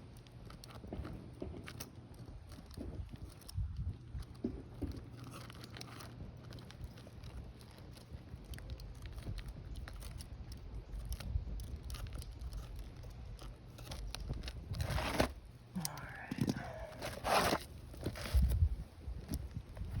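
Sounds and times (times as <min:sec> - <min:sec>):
wind rumble on microphone: 0:02.2 - 0:05.0, 0:06.2 - 0:15.2, 0:16.0 - 0:20.0
roofing shingle scraping: 0:13.7 - 0:15.5, 0:16.4 - 0:18.7.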